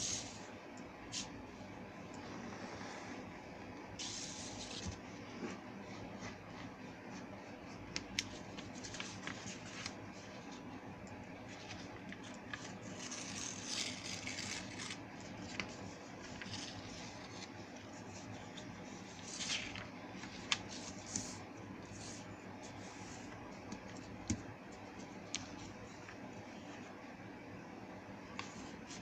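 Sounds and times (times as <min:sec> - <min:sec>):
paper rustling: 0:04.0 - 0:10.6, 0:11.4 - 0:24.4
paper creases clicking: 0:11.7 - 0:17.5.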